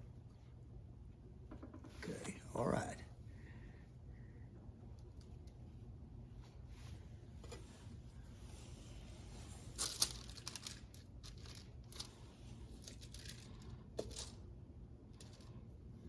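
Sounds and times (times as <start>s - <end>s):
low steady hum: 0.0s - 16.0s
scratching and crinkling of hand work: 1.7s - 3.0s, 4.9s - 16.0s.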